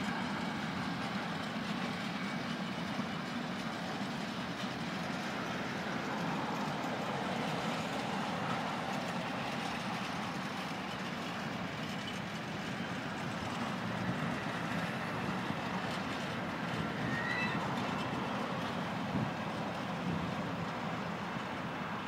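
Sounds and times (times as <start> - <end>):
train rumbling on track: 0.0 - 22.0
faint high squeal: 16.7 - 18.4.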